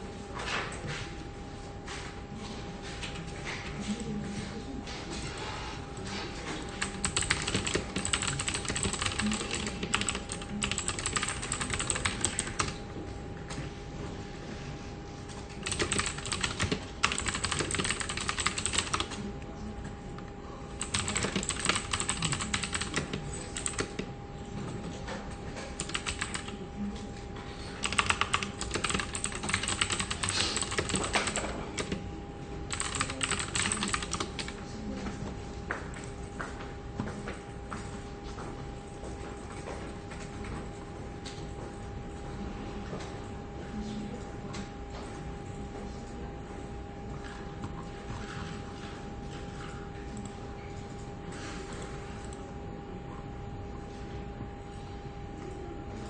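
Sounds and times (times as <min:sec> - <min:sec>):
keyboard typing: 0:06.6 - 0:12.8, 0:15.5 - 0:19.2, 0:20.8 - 0:24.1, 0:25.7 - 0:26.6, 0:27.8 - 0:32.1, 0:32.7 - 0:34.6.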